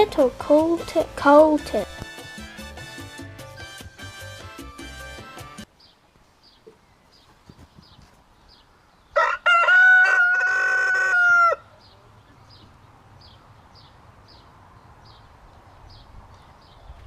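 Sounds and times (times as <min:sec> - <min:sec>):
rooster crowing: 0:09.2 - 0:11.7.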